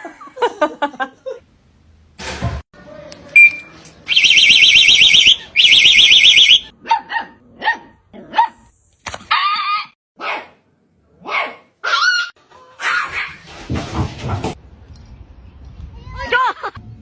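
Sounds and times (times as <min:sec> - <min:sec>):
electronic alarm warbling: 0:04.1 - 0:06.7
dog barking: 0:06.8 - 0:08.6, 0:10.2 - 0:10.6, 0:11.2 - 0:13.4.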